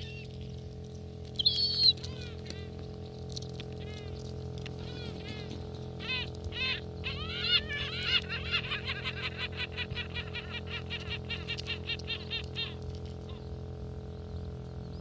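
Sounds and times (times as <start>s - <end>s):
gull calling: 0.0s - 0.4s, 1.3s - 2.8s, 3.8s - 13.6s.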